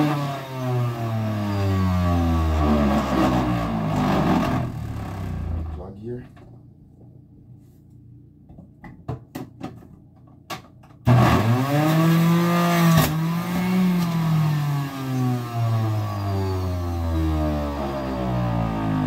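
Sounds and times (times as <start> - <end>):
electric juicer motor humming: 11.1 - 19.0.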